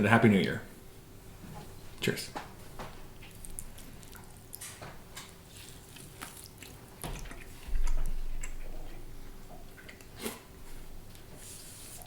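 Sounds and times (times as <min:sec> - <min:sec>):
people chewing: 0:03.2 - 0:12.0.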